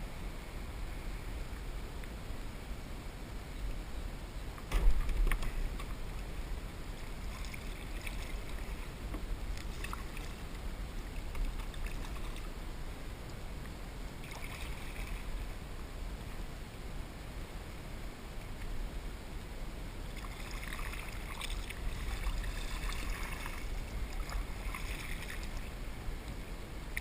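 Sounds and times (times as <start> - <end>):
steady low rumble: 0.0 - 27.0
paddle water splashing: 4.8 - 12.8, 14.2 - 15.7, 20.1 - 27.0
water lapping at hull: 4.8 - 13.0, 14.0 - 15.7, 20.1 - 27.0.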